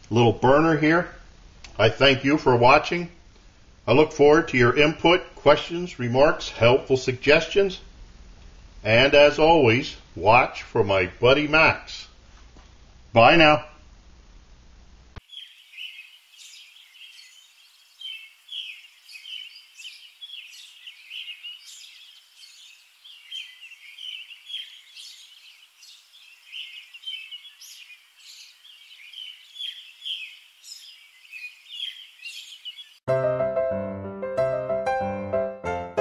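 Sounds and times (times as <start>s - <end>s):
birds chirping: 15.2s - 33.1s.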